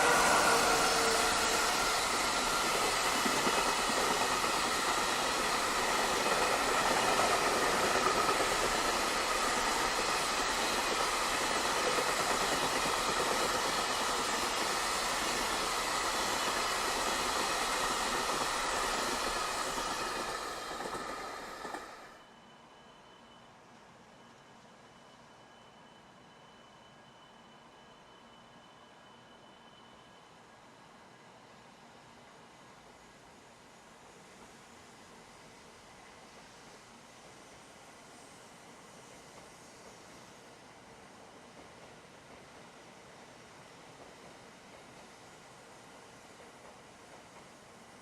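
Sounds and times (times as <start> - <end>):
train wheels rumbling on rail: 0.0 - 22.2, 33.9 - 48.0
faint hiss: 0.0 - 48.0.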